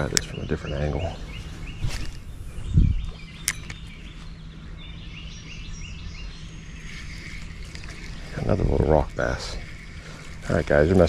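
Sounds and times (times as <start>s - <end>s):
outdoor background noise: 0.0s - 11.0s
small bird chirping: 0.0s - 11.0s
sharp click: 3.4s - 3.8s.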